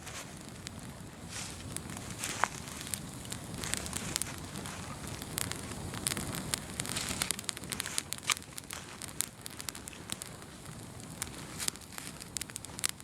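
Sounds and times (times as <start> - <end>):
bonfire crackling and popping: 0.0 - 13.0.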